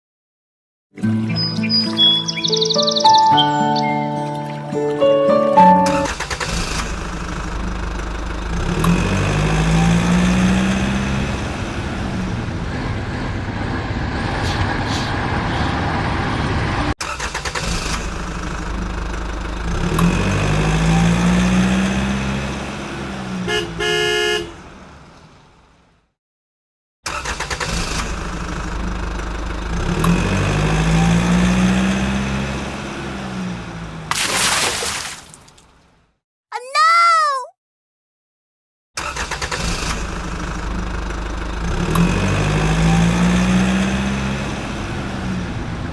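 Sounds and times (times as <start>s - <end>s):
engine running: 5.8s - 23.4s, 27.3s - 34.1s, 39.0s - 45.9s
horn toots: 23.4s - 24.6s.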